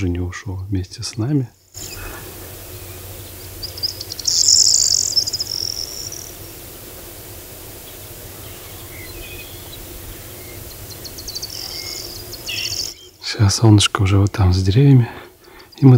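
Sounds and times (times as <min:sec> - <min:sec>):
outdoor background noise: 0:00.0 - 0:15.9
songbird trilling: 0:01.8 - 0:13.2.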